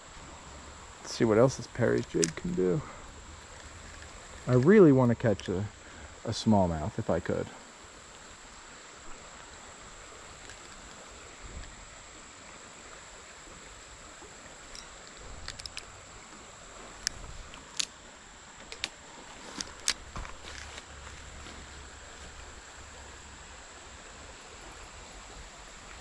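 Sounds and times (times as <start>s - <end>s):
creek water running: 0.0s - 26.0s
high-pitched insect drone: 0.1s - 25.8s.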